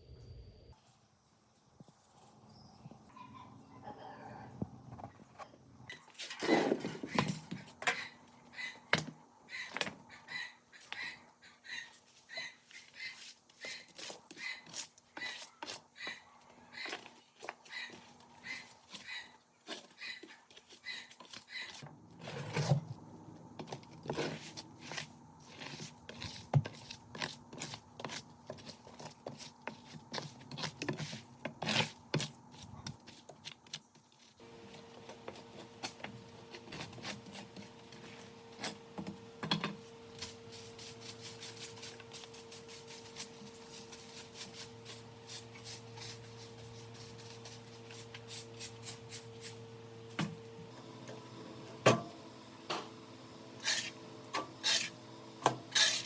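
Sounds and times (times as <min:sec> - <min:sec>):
hand tools scraping wood: 0:23.6 - 0:33.8, 0:34.6 - 0:39.1, 0:53.6 - 0:56.0
steady hum: 0:34.4 - 0:56.0.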